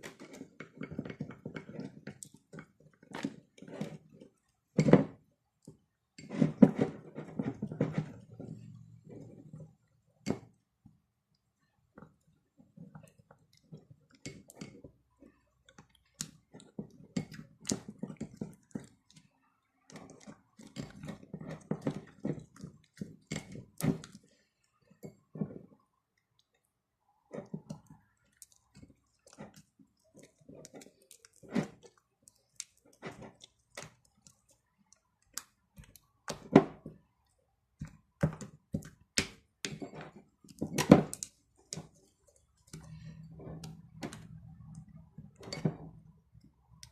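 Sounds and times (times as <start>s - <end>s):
slime squelching: 11.9s - 46.9s.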